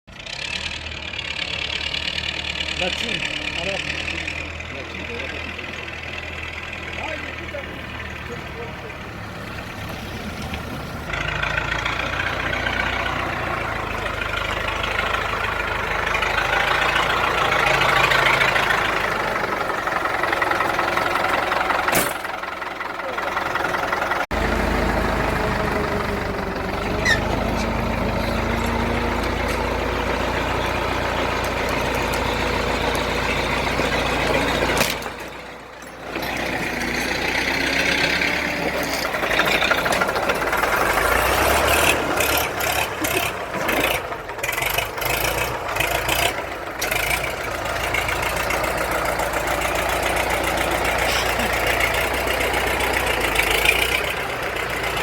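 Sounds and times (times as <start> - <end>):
tractor diesel engine clattering: 0.1 - 55.0.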